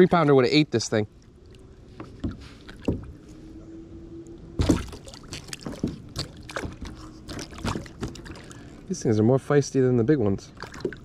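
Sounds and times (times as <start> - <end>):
fish flapping and splashing: 4.6 - 8.8.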